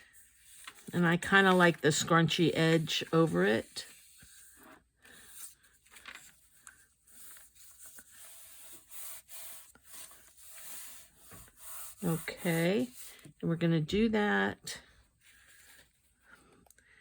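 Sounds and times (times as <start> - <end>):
paper rustling and crinkling: 0.0 - 12.9.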